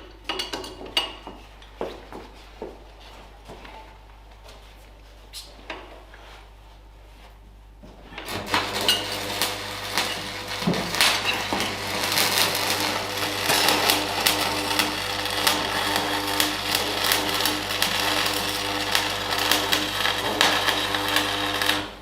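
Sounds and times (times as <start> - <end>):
small power tool running: 8.4 - 22.0.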